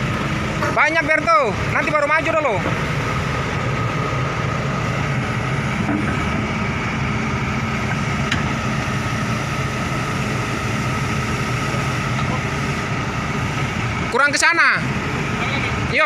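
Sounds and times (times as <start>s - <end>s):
diesel engine droning: 0.0s - 16.0s
thin steady whine: 0.0s - 16.0s.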